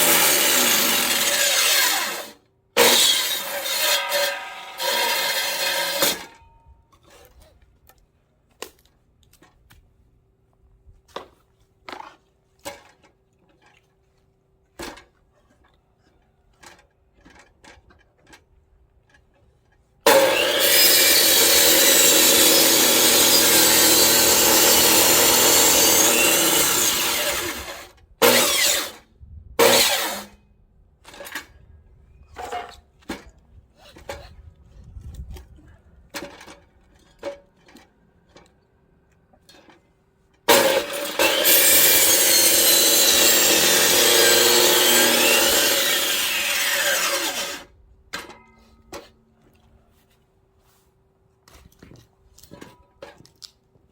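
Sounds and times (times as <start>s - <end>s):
electric chainsaw cutting wood: 0.0s - 6.3s, 20.1s - 29.0s, 29.6s - 30.4s, 40.5s - 47.7s.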